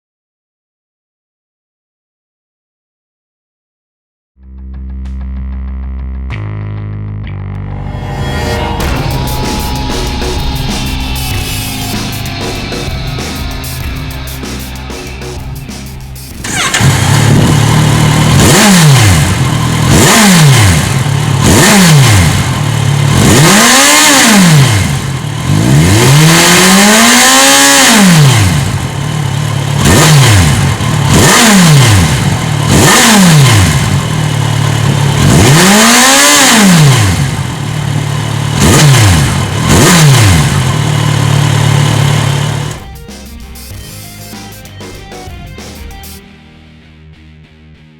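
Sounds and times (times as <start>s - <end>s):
motorcycle engine revving: 7.6s - 42.8s.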